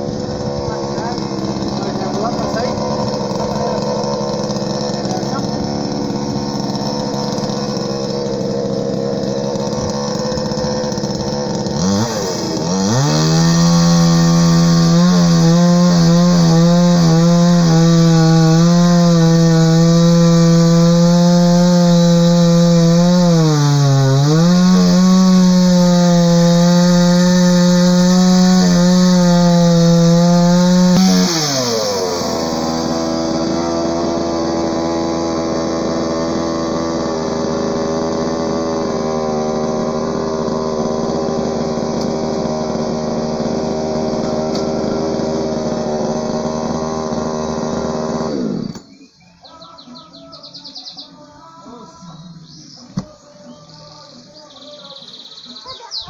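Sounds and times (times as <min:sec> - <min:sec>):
chainsaw idling and revving: 0:00.0 - 0:49.0.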